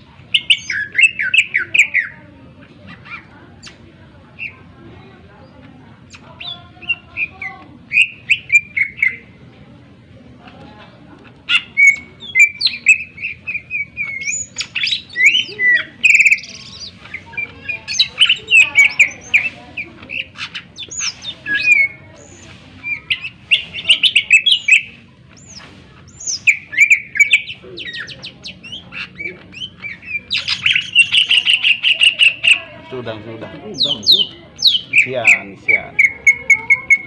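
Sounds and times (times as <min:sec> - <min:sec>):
bird singing whistles and trills: 0:00.3 - 0:02.1, 0:06.1 - 0:09.2, 0:11.5 - 0:32.6, 0:33.8 - 0:37.0.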